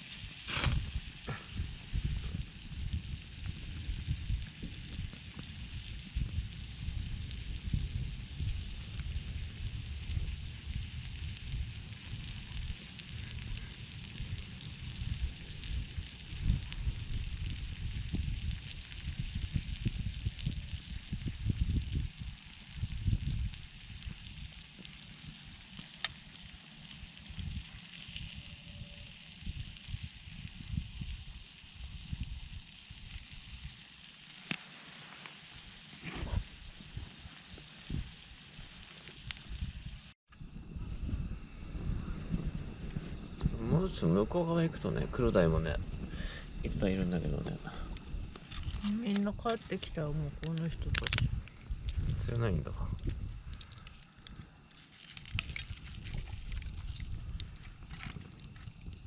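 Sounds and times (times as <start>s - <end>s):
wind on microphone: 0.0s - 33.9s, 35.7s - 59.0s
meat sizzling on griddle: 0.0s - 40.2s
fire crackling and popping: 0.0s - 40.7s, 42.0s - 59.0s.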